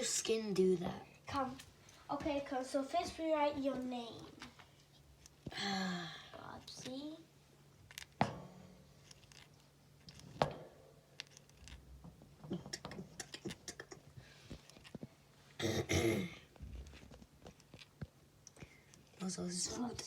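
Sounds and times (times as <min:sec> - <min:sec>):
person clearing throat: 0:12.5 - 0:14.1, 0:15.6 - 0:16.5.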